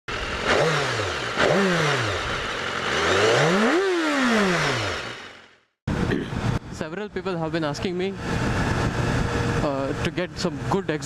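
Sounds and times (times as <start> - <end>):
motorcycle engine revving: 0.1 - 6.6, 8.2 - 11.0.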